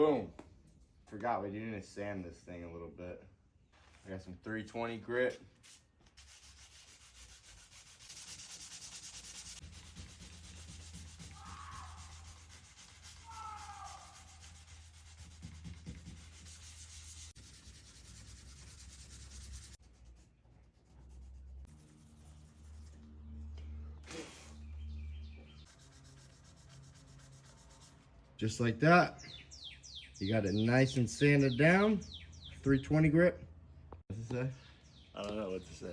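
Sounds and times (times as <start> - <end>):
sandpaper rubbing over surface: 5.6 - 20.2, 24.1 - 24.7, 25.6 - 28.1.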